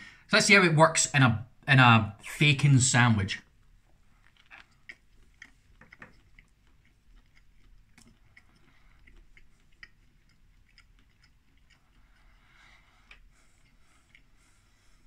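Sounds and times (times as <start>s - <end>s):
person chewing: 3.4s - 15.0s
small mouth clicks: 4.2s - 12.4s.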